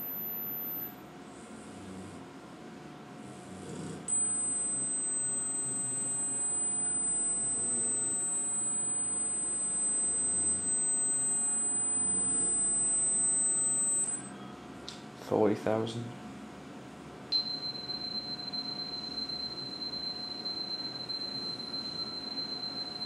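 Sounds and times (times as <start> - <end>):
high-pitched sine test tone: 0.0 - 1.0, 4.1 - 14.4, 17.3 - 23.0.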